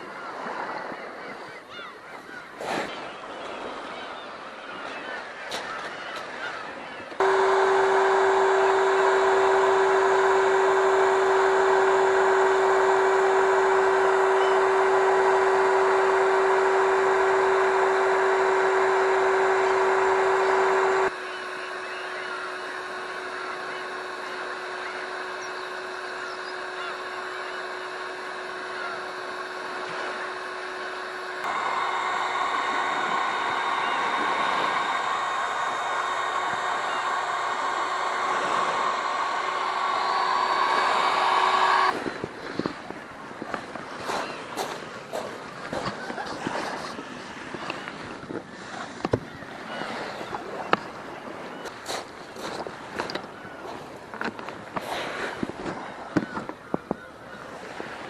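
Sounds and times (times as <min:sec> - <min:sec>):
faint bird calls: 0:00.0 - 0:41.9, 0:44.0 - 0:44.7, 0:55.0 - 0:57.6
outboard motor humming: 0:00.0 - 0:58.0
water splashing around boat: 0:07.2 - 0:58.0.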